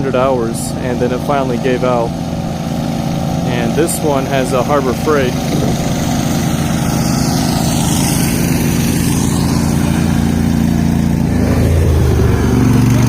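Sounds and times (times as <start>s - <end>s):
garden tractor engine running: 0.0s - 13.0s.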